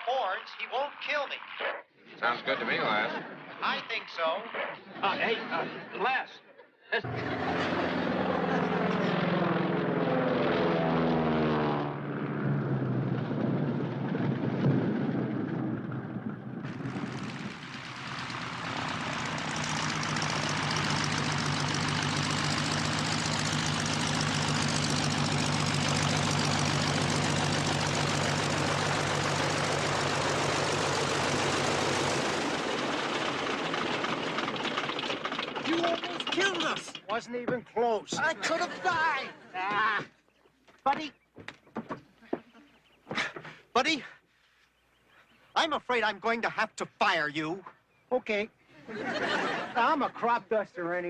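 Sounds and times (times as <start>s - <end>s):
propeller plane engine droning: 0.0s - 5.9s, 7.0s - 37.3s, 47.7s - 50.3s
rushing wind: 12.6s - 20.2s.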